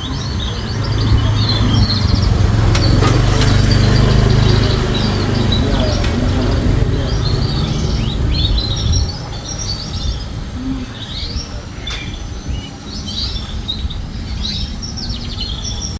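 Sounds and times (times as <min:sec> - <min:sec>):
low rumble: 0:00.0 - 0:11.4
canary singing: 0:00.0 - 0:15.9.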